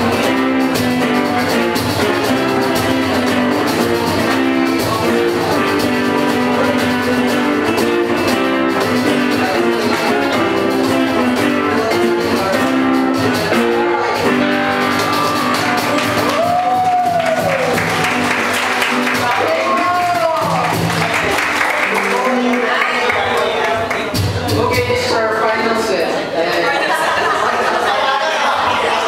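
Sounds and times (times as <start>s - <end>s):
electric guitars: 0.0s - 24.6s
drum kit: 0.0s - 25.5s.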